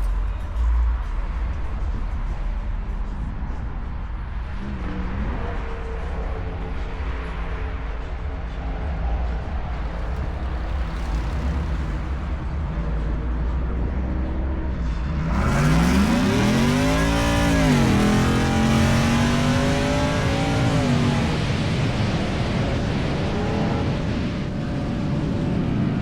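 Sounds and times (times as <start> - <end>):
car engine revving: 9.6 - 26.0.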